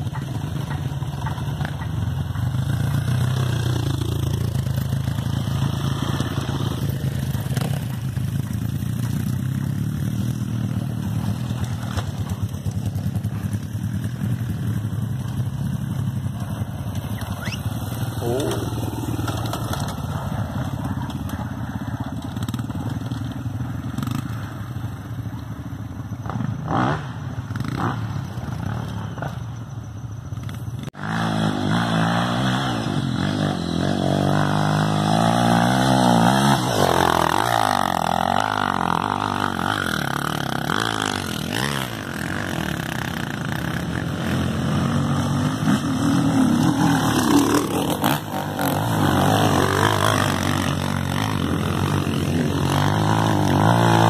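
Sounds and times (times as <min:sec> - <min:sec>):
motorcycle engines revving: 0:00.0 - 0:54.0
louder engine revving: 0:31.0 - 0:54.0.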